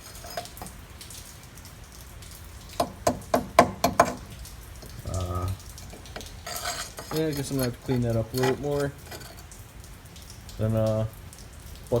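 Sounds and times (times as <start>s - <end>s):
metal knocking against metal: 0.0s - 0.7s, 2.8s - 9.5s.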